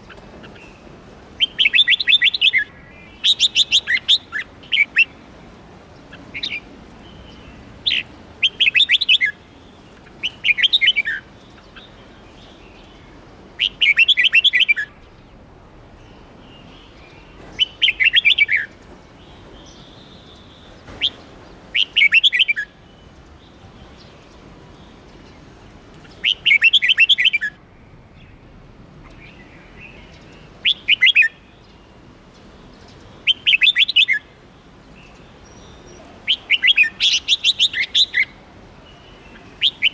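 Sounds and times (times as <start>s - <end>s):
bird singing bright notes: 29.1s - 31.9s, 35.0s - 39.9s.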